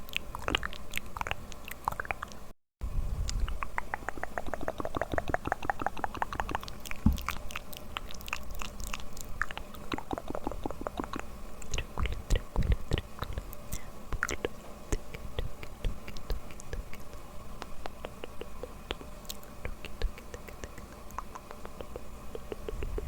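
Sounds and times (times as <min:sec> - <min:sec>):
mouth clicks and smacks: 0:00.0 - 0:02.4, 0:03.2 - 0:23.0
soft low thump: 0:07.0 - 0:07.3.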